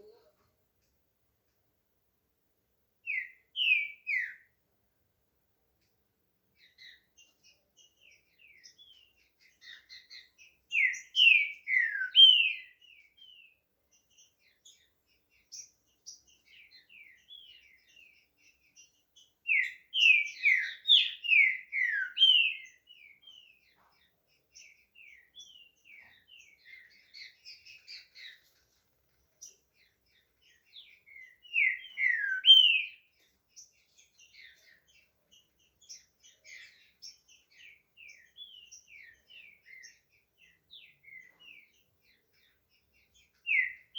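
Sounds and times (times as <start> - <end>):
bird singing whistled phrases: 3.1 - 4.5, 9.6 - 13.5, 19.5 - 23.5, 30.7 - 33.1, 43.5 - 43.9
soft bird twittering: 3.1 - 4.6, 6.6 - 43.9.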